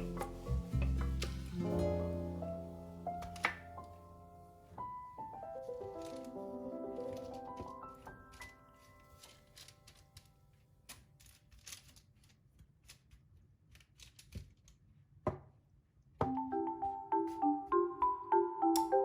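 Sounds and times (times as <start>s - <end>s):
marimba music: 0.0s - 3.4s, 16.3s - 19.0s
piano music: 0.0s - 9.4s, 16.2s - 19.0s.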